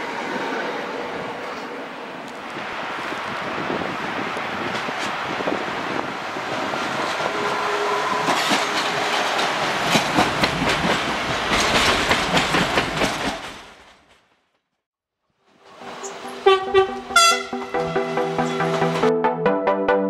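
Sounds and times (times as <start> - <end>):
train wheels clattering over joints: 8.1 - 14.1.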